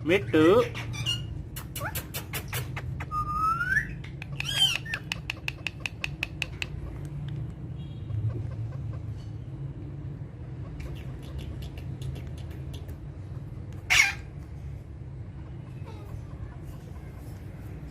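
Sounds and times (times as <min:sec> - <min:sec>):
parrot squawk: 0:00.6 - 0:06.7, 0:13.9 - 0:14.3
parrot whistle: 0:03.0 - 0:05.1
sharp clicks: 0:04.2 - 0:07.6.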